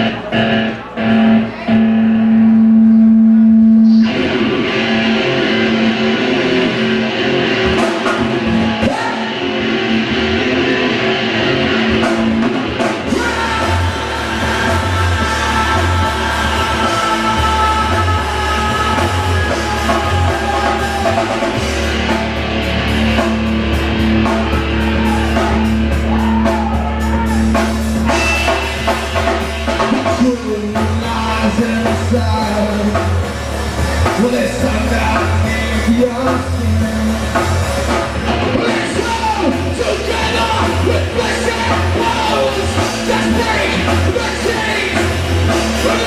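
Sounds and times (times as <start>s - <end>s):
rock band playing live: 0.0s - 46.0s
drum kit: 3.9s - 46.0s
person singing: 12.9s - 22.3s, 34.0s - 46.0s.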